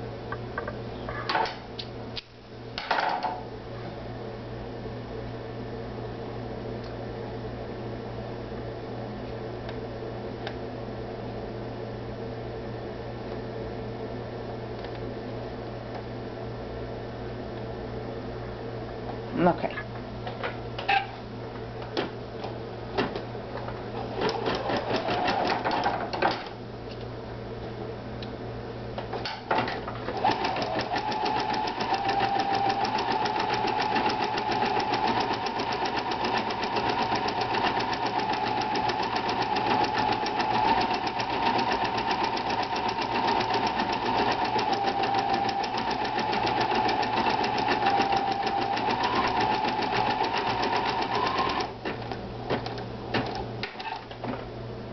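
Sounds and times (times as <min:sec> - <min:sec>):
sewing machine stitching: 0:24.0 - 0:26.0, 0:30.1 - 0:52.0.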